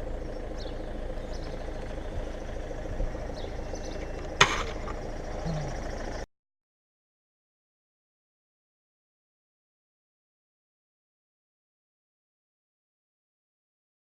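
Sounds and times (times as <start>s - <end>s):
steady low rumble: 0.0s - 6.3s
sharp bang: 4.4s - 4.9s.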